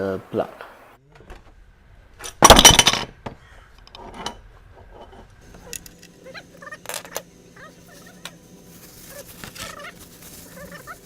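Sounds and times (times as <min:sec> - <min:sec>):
faint bird calls: 0:03.3 - 0:03.9, 0:07.5 - 0:11.0.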